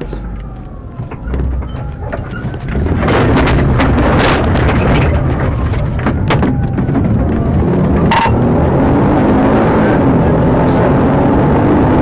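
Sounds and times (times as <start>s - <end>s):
sharp knocks and clicks: 0.0s - 8.4s
car engine and road noise: 0.0s - 12.0s.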